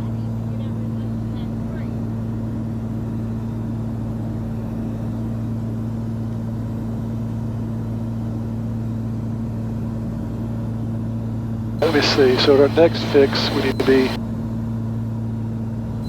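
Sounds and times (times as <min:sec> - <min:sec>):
propeller plane engines droning: 0:11.8 - 0:14.2.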